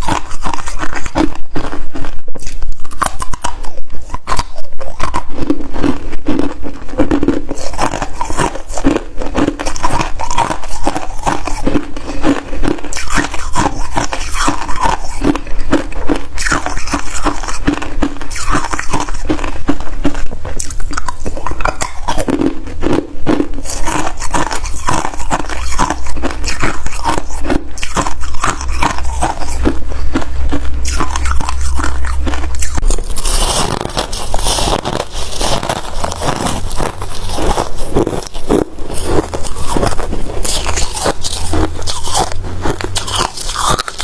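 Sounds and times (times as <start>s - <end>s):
person chewing crunchy frost: 0.0s - 44.0s
low rumble: 27.5s - 44.0s.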